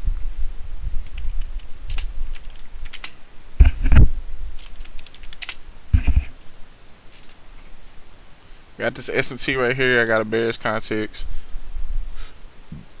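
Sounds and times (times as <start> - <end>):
computer keyboard clicking: 1.0 - 3.2, 4.6 - 5.6.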